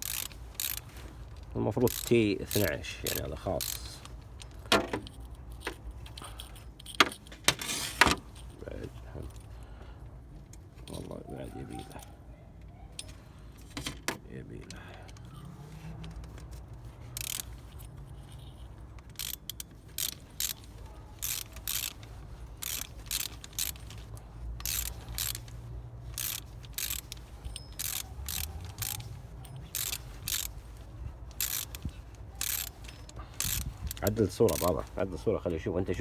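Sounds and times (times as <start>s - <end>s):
ratchet wrench clicking: 0.0s - 7.3s, 17.1s - 34.9s.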